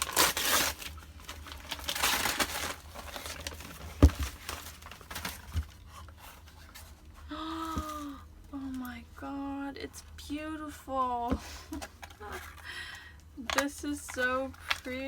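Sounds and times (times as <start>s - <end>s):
paper crinkling and tearing: 0.0s - 7.0s.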